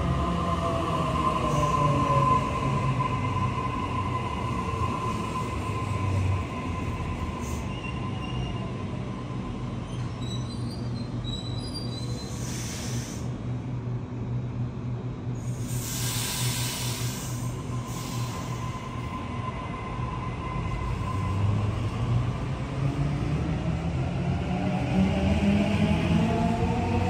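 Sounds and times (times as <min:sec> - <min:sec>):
train rumbling past: 0:00.0 - 0:27.0
high-pitched wheel squeal: 0:09.8 - 0:12.5.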